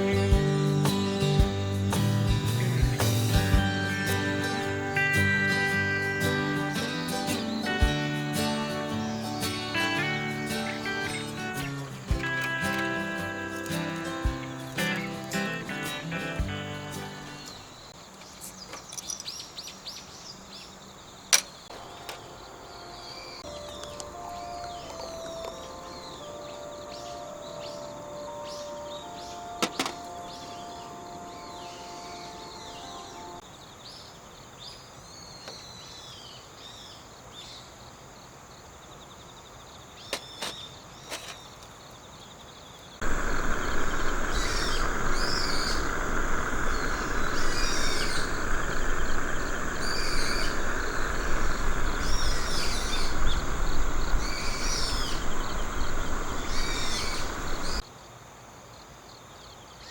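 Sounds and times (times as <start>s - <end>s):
insects chirping: 0.0s - 59.9s
loud steady rushing noise: 43.0s - 57.8s.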